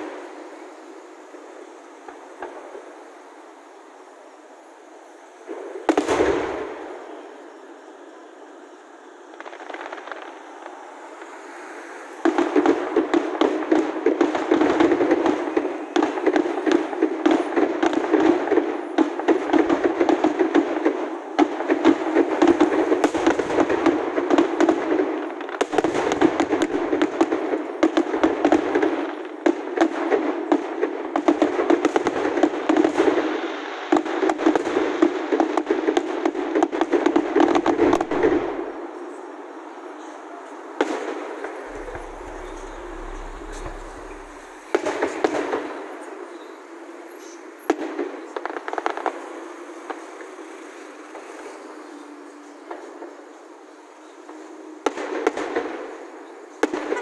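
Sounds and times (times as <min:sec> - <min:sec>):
firework crackling: 0:00.0 - 0:39.2, 0:40.6 - 0:46.3.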